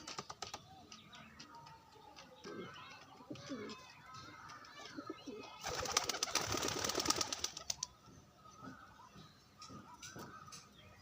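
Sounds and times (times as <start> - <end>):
pigeon flapping wings: 0.0 - 0.6, 5.6 - 7.9.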